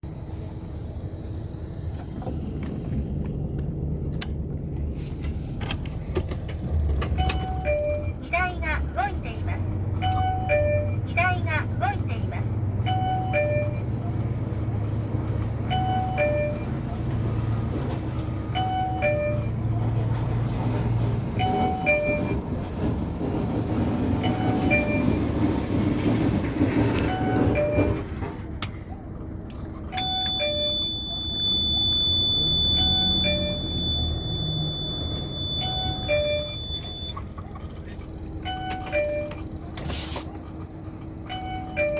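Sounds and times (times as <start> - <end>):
diesel truck engine rumbling: 0.0 - 41.9
electronic warning tones: 30.0 - 37.2.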